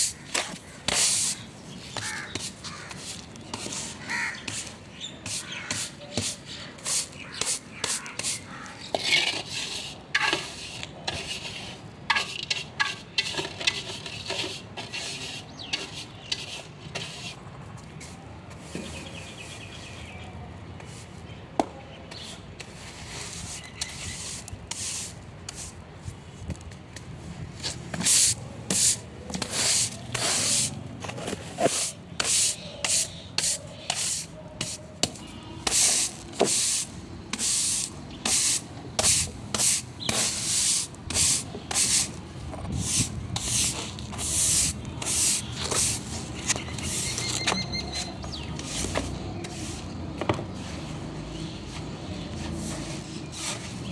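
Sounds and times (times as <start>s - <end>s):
scrubbing strokes on a surface: 0.0s - 17.4s, 27.7s - 30.8s, 31.4s - 47.3s.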